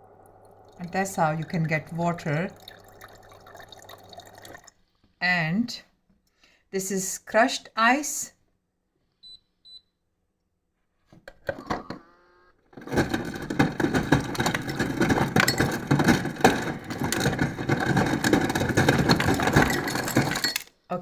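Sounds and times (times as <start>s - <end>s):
ice chips clattering into glass: 12.8s - 20.7s
ice crusher grinding rattle: 12.8s - 20.7s.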